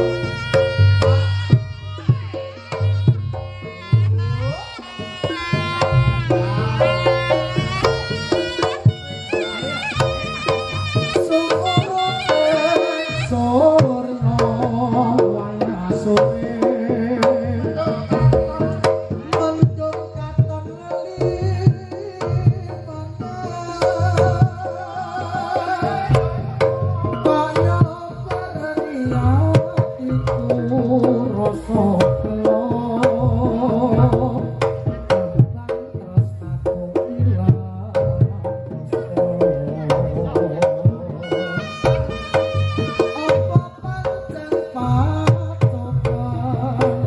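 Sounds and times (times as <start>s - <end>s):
gamelan music: 0.0s - 16.8s
rapid drum strokes: 0.0s - 47.0s.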